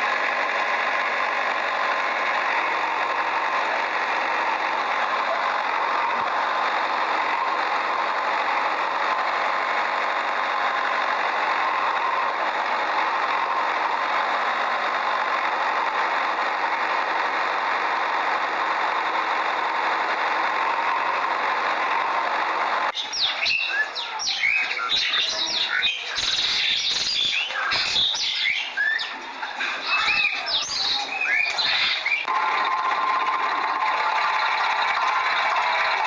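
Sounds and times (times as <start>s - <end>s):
engine running steadily: 0.0s - 36.0s.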